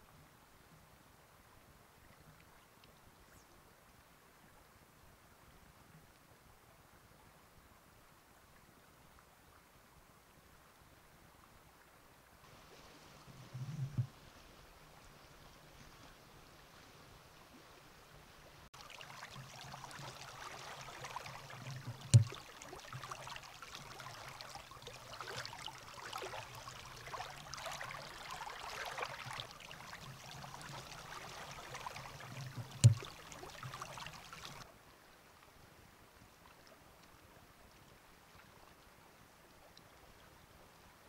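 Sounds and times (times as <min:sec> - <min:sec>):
faint steady hiss: 0:00.0 - 0:41.0
stream water rushing: 0:12.4 - 0:34.7.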